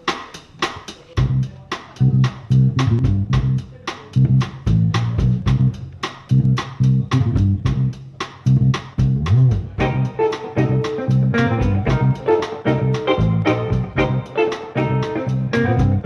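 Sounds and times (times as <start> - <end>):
drum hits: 0.2 - 16.0
electric bass line: 1.2 - 3.6, 4.2 - 16.0
sustained chords: 9.8 - 16.0.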